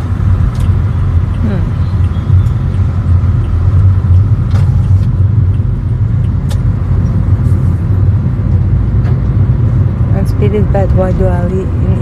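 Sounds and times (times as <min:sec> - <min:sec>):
car road rumble: 0:00.0 - 0:12.0.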